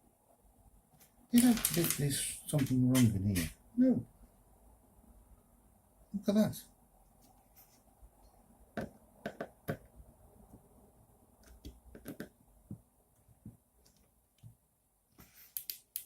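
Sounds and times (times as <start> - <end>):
small plastic parts clicking: 1.4 - 3.5.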